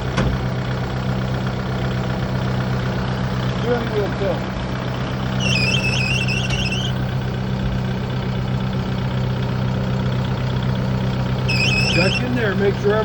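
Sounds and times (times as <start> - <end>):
tractor diesel engine idling: 0.0 - 13.0
high-pitched chirping squeak: 5.4 - 7.1, 11.5 - 12.3.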